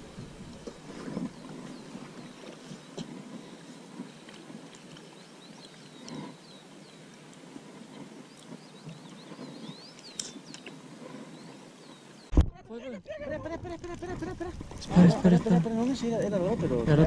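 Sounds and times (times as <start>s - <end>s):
bird chirping: 8.3s - 12.3s.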